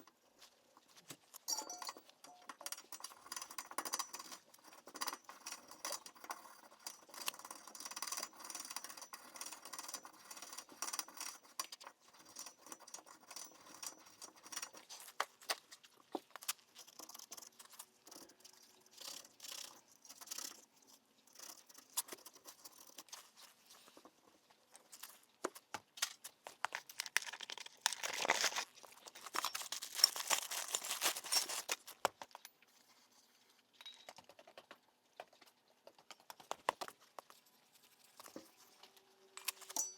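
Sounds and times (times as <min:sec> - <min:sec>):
metal tools clinking: 0:01.5 - 0:02.6
rustling: 0:09.4 - 0:33.7.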